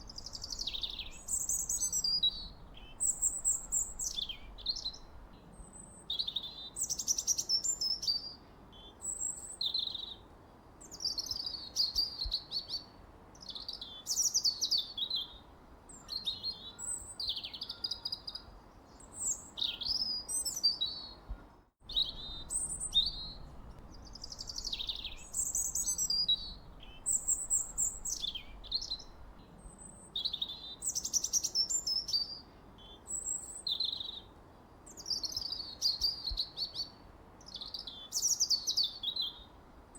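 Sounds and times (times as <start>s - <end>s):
songbirds chirping and singing: 21.9s - 29.6s.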